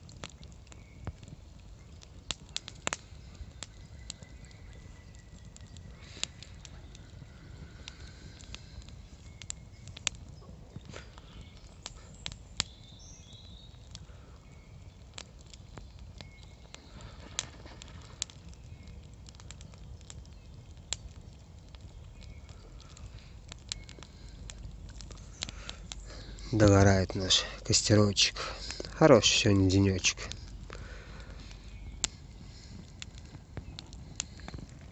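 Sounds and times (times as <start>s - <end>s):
campfire wood crackling: 0.0s - 34.9s.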